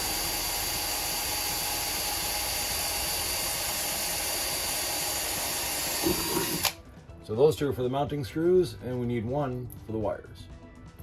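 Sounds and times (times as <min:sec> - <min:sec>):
power drill boring through metal: 0:00.0 - 0:06.8.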